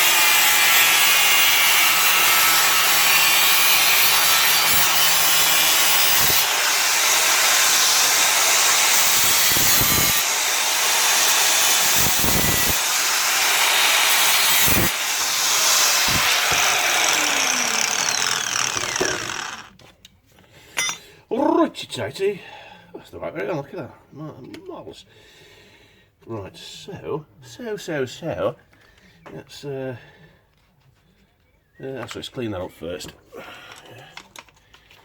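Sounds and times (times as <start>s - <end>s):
angle grinder cutting steel: 0.0s - 19.8s.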